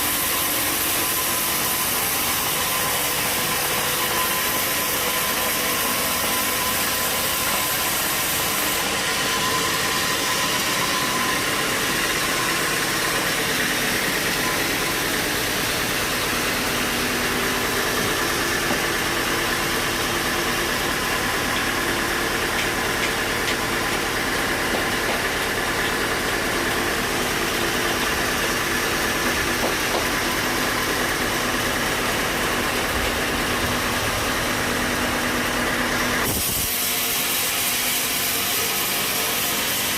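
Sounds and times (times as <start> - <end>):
sawmill machinery motor drone: 0.0 - 39.9.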